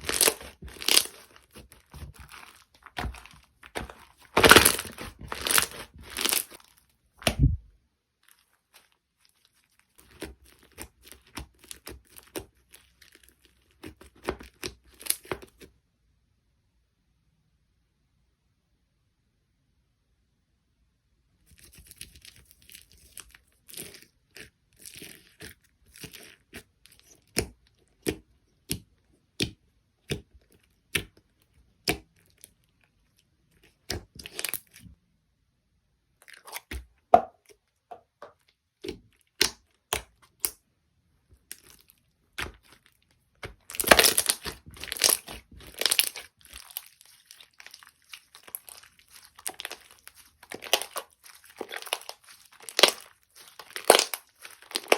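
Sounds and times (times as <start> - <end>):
slime clicking and popping: 0.0 - 6.6, 43.4 - 54.9
slime crinkling and crunching: 0.0 - 7.6, 8.2 - 15.7, 21.5 - 35.0, 36.2 - 40.6, 41.4 - 54.9.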